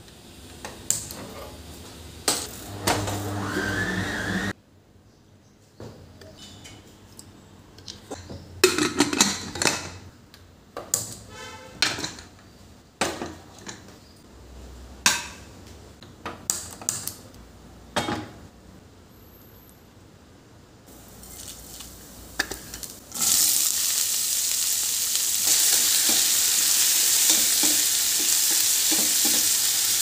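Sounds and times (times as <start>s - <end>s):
dishes and metal utensils clattering: 1.1s - 1.7s, 6.2s - 7.0s, 7.9s - 10.1s, 11.7s - 12.4s.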